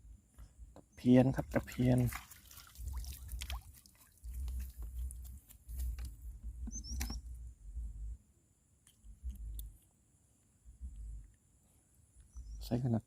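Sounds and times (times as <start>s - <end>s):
light clicks and patter: 3.3s - 7.3s.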